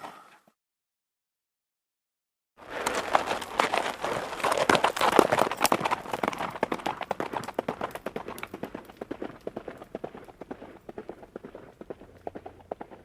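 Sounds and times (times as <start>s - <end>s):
galloping horse hoofbeats: 2.6s - 13.0s.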